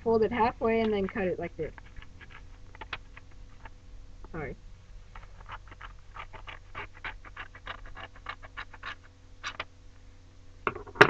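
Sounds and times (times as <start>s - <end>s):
scissors snipping paper: 5.2s - 9.6s.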